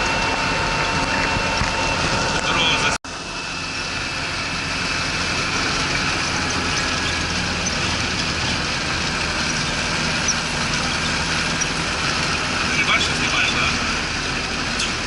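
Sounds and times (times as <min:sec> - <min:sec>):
road and cabin noise: 0:00.0 - 0:15.0
vehicle engine running: 0:00.0 - 0:15.0.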